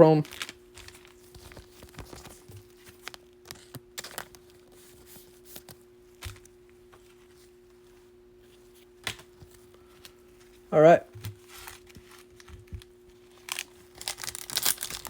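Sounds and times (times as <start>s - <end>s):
cards being flipped by hand: 0.3s - 7.4s.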